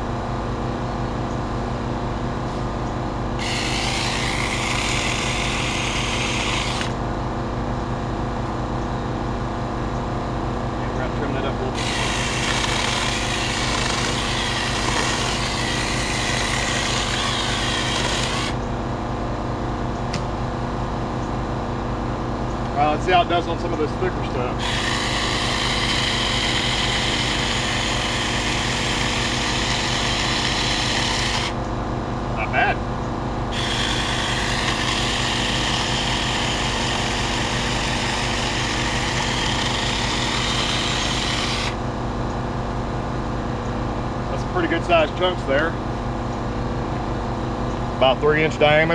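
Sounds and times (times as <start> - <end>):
low engine running: 0.0 - 48.9
mini chainsaw cutting branch: 3.4 - 7.0, 11.8 - 18.6, 24.5 - 31.6, 33.5 - 41.8.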